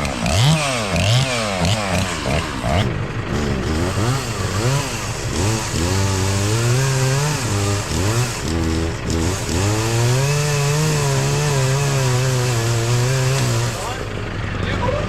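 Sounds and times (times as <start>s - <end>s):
chainsaw engine revving: 0.0s - 14.8s.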